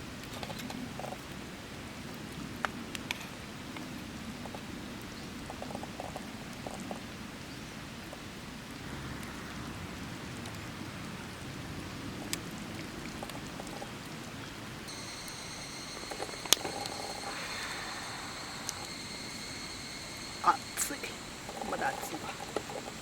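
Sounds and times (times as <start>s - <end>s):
food sizzling in a pan: 14.9s - 23.0s
steady high-pitched tone: 14.9s - 23.0s.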